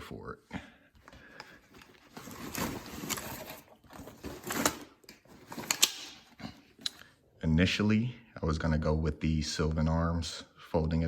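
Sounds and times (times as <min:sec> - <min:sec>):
rustling handling noise: 0:01.0 - 0:07.0.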